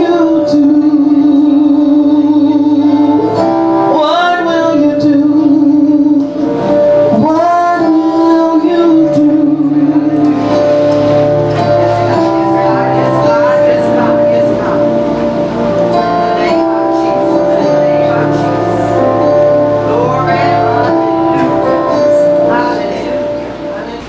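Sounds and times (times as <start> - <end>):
musical accompaniment: 0.0 - 24.0
woman singing with vibrato: 0.0 - 24.0.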